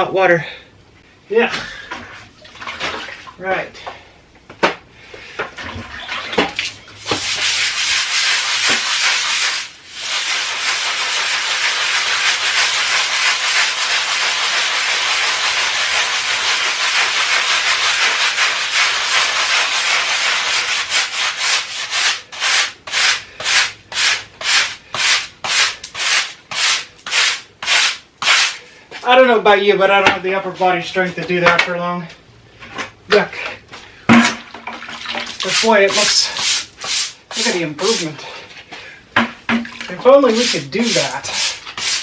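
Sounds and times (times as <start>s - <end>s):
scrub brush scrubbing a wall: 6.5s - 28.7s, 35.2s - 38.4s, 39.7s - 42.0s.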